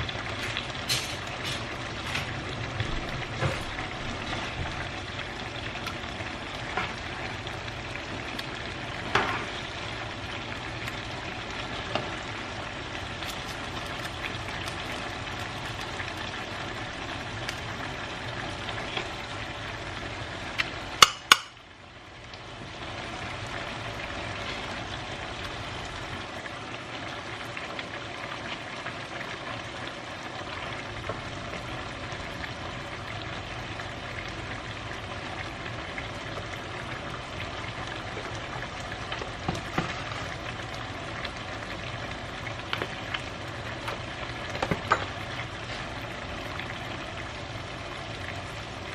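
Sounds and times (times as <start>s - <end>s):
food sizzling in frying pan: 0.0s - 48.9s.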